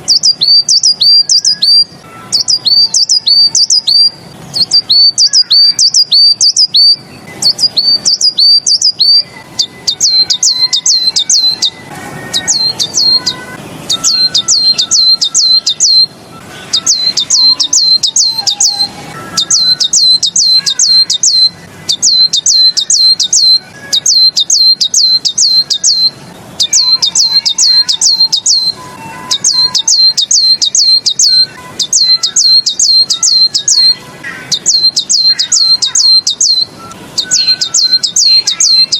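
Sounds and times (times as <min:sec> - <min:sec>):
faint lower bird calls: 0:00.0 - 0:38.9
songbird singing sharp high notes: 0:00.0 - 0:38.9.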